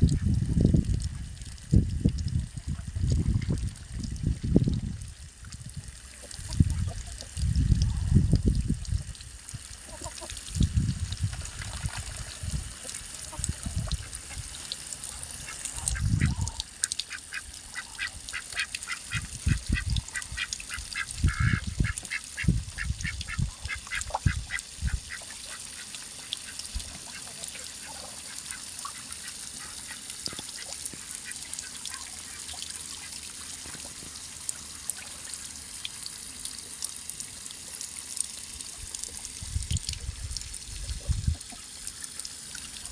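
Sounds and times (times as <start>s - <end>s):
ducks quacking: 9.8s - 10.4s, 15.4s - 30.0s.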